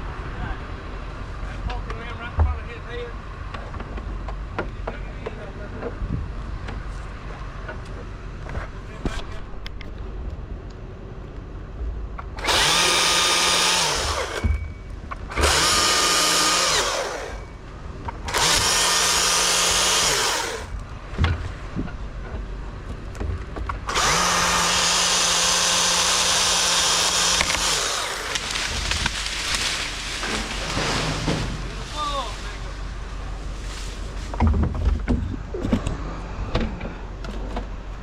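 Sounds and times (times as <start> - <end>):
chainsaw revving while cutting: 12.4 - 14.4, 15.3 - 17.4, 18.3 - 20.7, 23.9 - 28.8
chainsaw idling: 12.4 - 14.5, 15.3 - 17.5, 18.3 - 20.7, 23.9 - 30.9.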